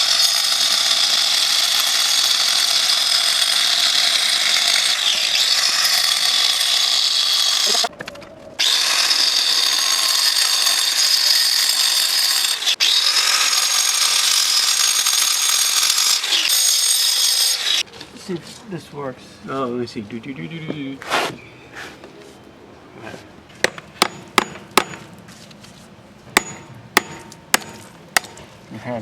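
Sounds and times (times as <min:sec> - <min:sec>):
angle grinder whining: 0:00.0 - 0:07.9, 0:08.6 - 0:17.9.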